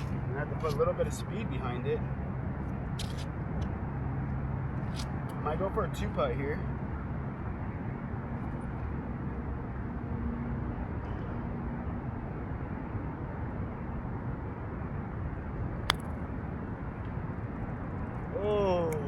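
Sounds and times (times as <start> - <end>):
low outdoor rumble: 0.0 - 19.0
putter striking golf ball: 15.9 - 16.1.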